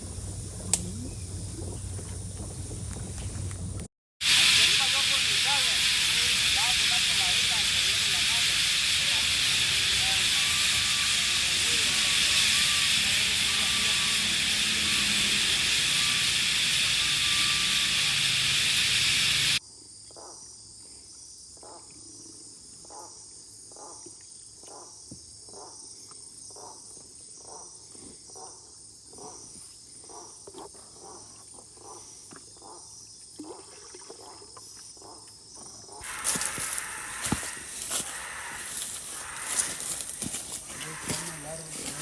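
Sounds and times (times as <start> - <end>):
insects trilling: 0.0 - 3.6, 4.3 - 42.0
loud rough noise: 4.2 - 19.6, 36.0 - 42.0
loud steady hiss: 4.2 - 19.6, 36.0 - 42.0.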